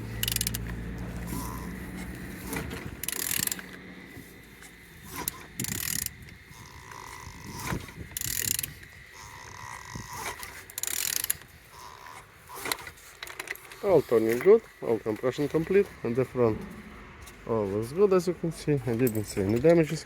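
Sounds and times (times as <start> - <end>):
ratchet wrench clicking: 0.0 - 16.0
engine hissing: 0.0 - 20.0.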